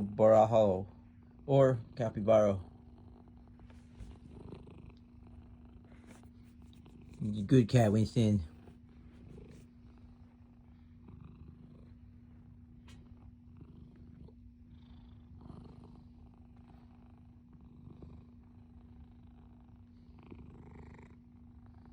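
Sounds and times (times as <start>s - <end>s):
cat purring: 0.0s - 21.9s.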